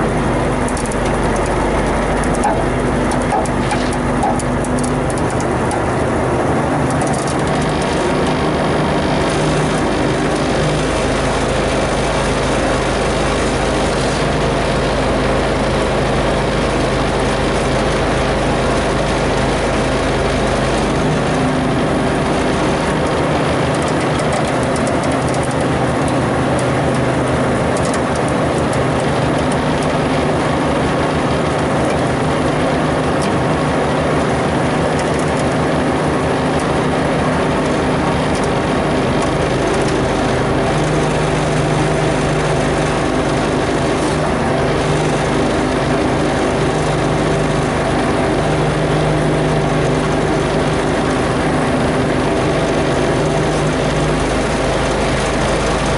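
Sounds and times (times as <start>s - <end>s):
heavy vehicle engine rumbling: 0.0s - 55.9s.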